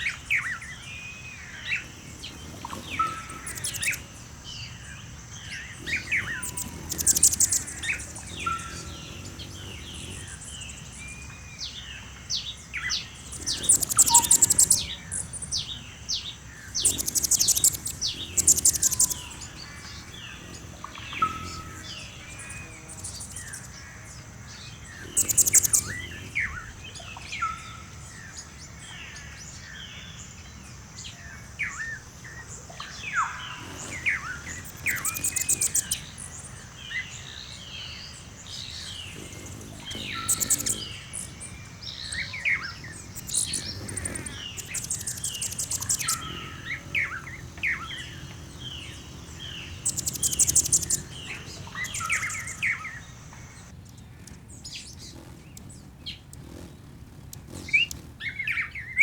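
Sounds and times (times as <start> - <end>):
birds chirping and trilling: 0.0 - 59.0.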